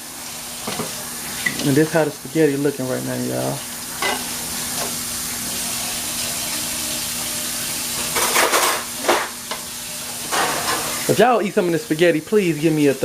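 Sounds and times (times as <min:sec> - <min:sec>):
food sizzling in a pan: 0:00.0 - 0:13.0
utensil scraping a pan: 0:07.9 - 0:11.1.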